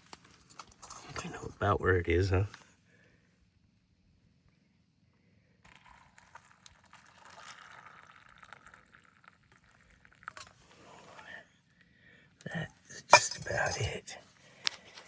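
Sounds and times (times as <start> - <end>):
hot water pouring into cup: 5.7 - 10.7.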